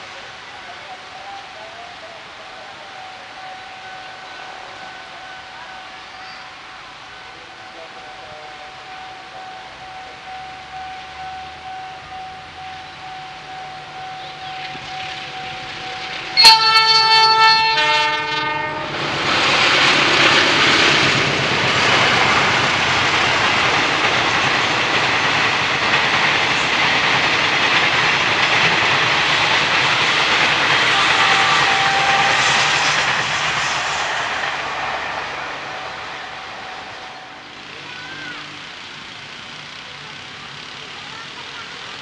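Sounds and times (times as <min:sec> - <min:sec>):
train rushing rail noise: 0:00.0 - 0:42.0
train horn: 0:02.8 - 0:10.4, 0:15.4 - 0:19.2, 0:30.7 - 0:37.4.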